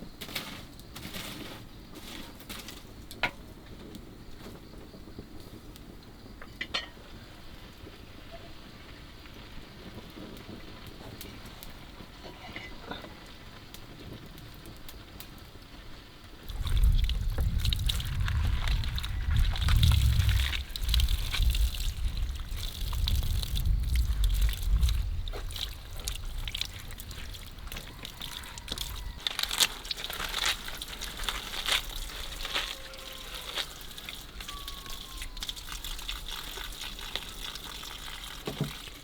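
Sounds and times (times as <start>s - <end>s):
water running and splashing: 16.4s - 39.0s.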